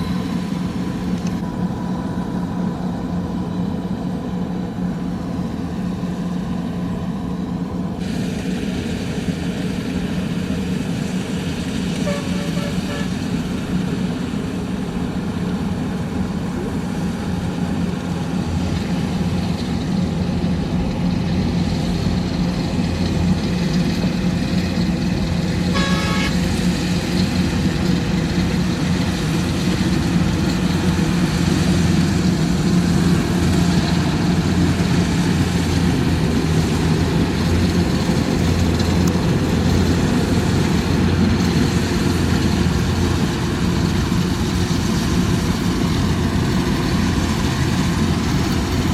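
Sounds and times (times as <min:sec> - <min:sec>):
combine harvester engine running: 0:00.0 - 0:48.9
horn toot: 0:12.0 - 0:13.2, 0:25.7 - 0:26.4.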